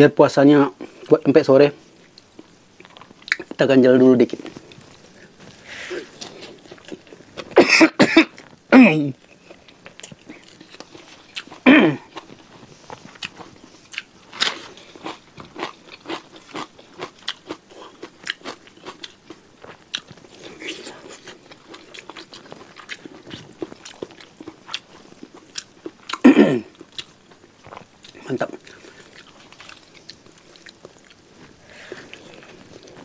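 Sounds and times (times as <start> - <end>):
person chewing wetly: 9.4 - 33.0.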